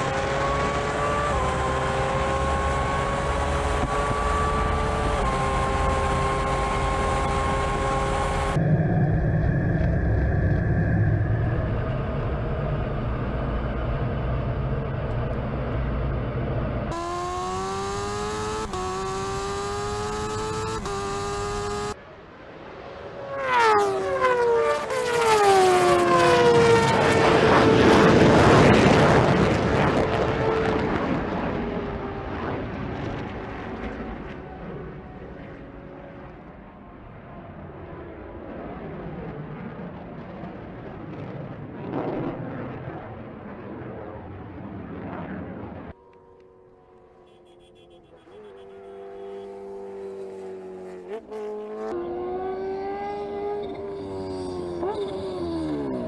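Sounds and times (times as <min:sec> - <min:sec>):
high-revving engine accelerating: 0:00.0 - 0:22.0, 0:23.0 - 0:37.0, 0:45.7 - 0:56.0
loud rushing roar: 0:00.0 - 0:37.7
low engine rumble: 0:08.4 - 0:16.9
vehicle passing at speed: 0:15.4 - 0:36.2, 0:46.1 - 0:56.0.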